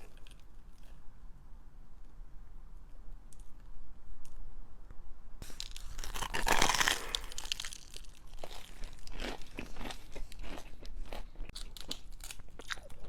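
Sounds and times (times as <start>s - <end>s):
crisp food crunching: 5.4s - 13.0s.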